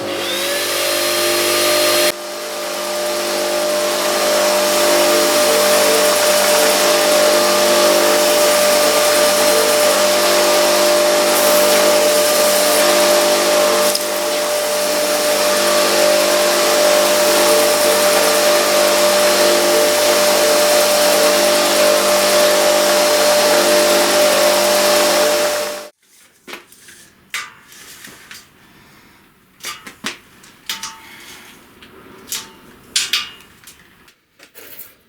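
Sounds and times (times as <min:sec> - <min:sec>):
electric grinder whining: 0:00.0 - 0:25.9.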